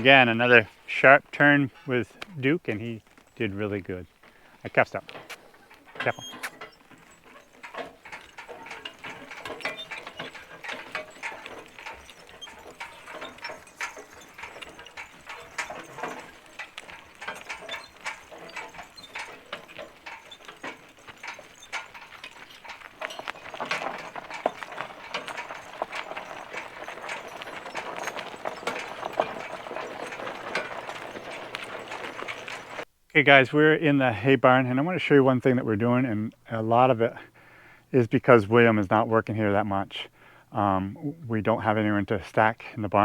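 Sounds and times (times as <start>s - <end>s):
harness chains rattling and clinking: 0.0s - 32.9s
horse hoofbeats: 0.0s - 43.0s.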